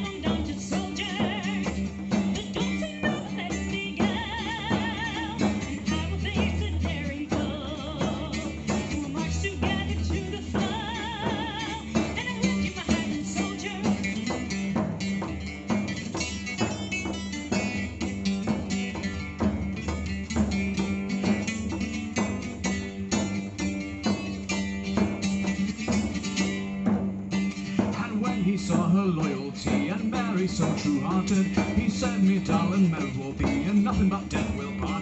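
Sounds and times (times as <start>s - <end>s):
drums: 0.0s - 35.0s
strummed guitar: 0.0s - 35.0s.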